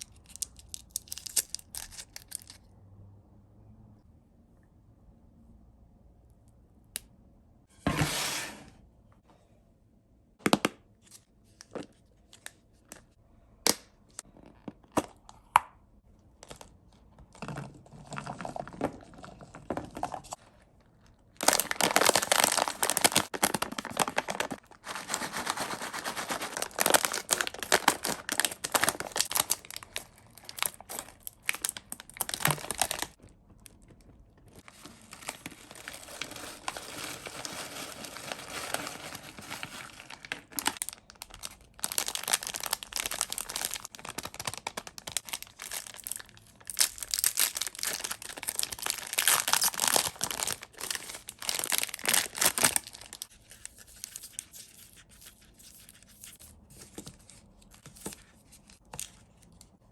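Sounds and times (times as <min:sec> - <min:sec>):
packaging crinkling: 0:21.3 - 0:54.6.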